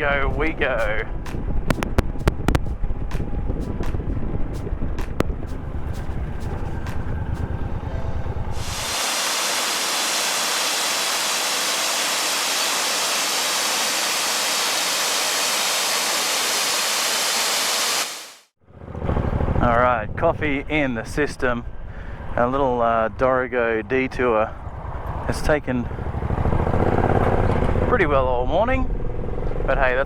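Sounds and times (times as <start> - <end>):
wind on microphone: 0.0 - 13.2
steady hiss: 8.6 - 18.5
motorcycle engine rumble: 18.7 - 22.8, 23.9 - 30.0.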